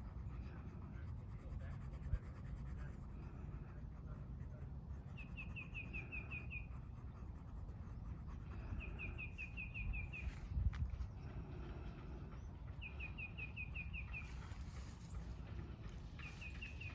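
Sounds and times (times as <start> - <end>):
coloring strokes scratching paper: 0.0 - 9.4
bird trilling chirps: 8.8 - 10.3, 12.8 - 14.5.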